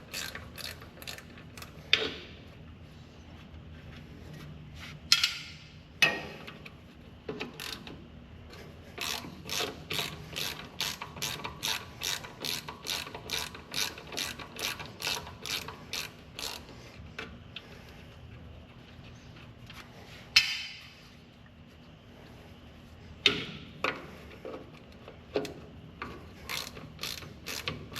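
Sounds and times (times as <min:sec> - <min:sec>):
ratchet wrench clicking: 0:00.0 - 0:01.7, 0:07.5 - 0:07.9, 0:09.0 - 0:16.7, 0:26.4 - 0:27.9.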